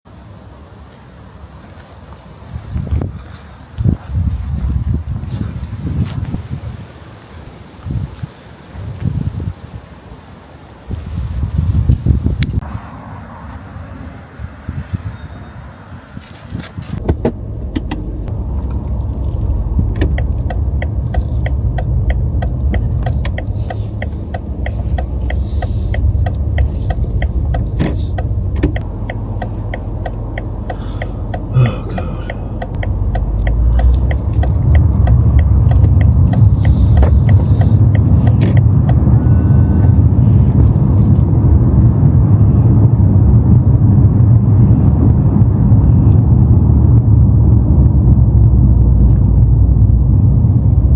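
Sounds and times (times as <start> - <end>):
car engine starting and rumbling: 16.6 - 50.9
rapid even ticking: 17.2 - 39.1.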